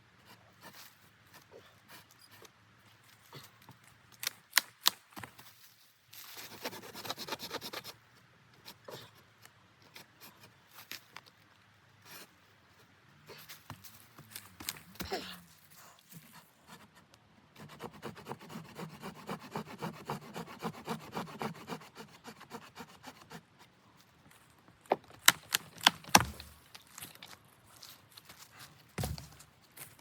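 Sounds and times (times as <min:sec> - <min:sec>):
hand saw cutting wood: 0:17.6 - 0:23.4.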